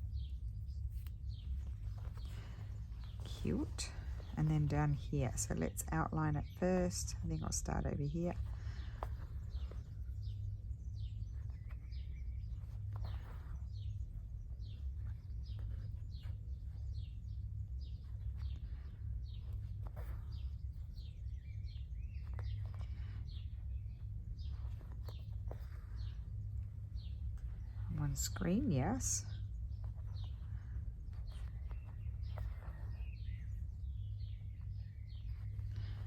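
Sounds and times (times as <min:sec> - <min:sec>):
low hum: 0:00.0 - 0:36.0
small birds chirping: 0:00.0 - 0:36.0.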